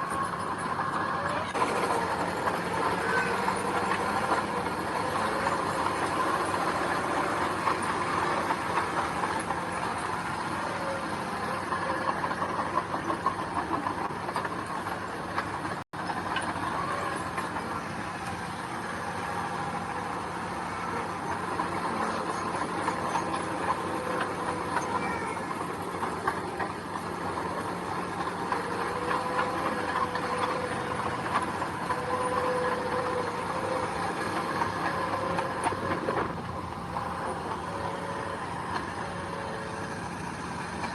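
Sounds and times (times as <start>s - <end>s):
heavy machinery engine: 0.0s - 40.9s.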